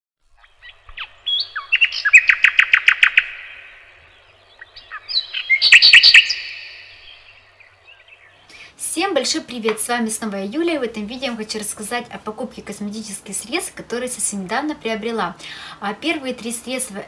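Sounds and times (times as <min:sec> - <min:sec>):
songbird singing high chirps: 0:00.4 - 0:08.6.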